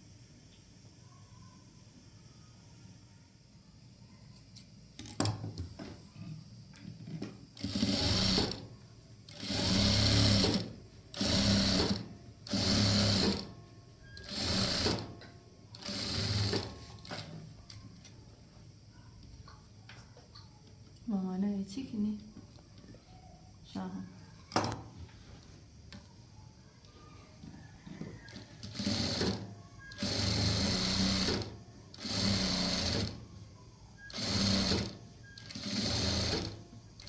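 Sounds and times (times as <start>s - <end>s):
sewing machine stitching: 7.6s - 8.7s, 9.3s - 13.5s, 14.1s - 17.3s, 28.2s - 33.2s, 34.0s - 37.0s.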